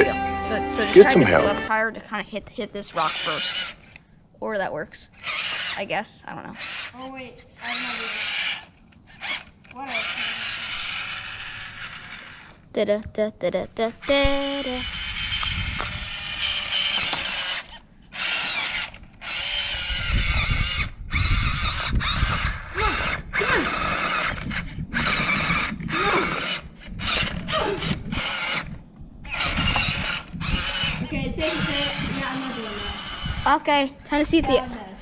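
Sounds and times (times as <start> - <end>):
electric motor and gears whining: 0.0 - 12.8, 13.8 - 35.0.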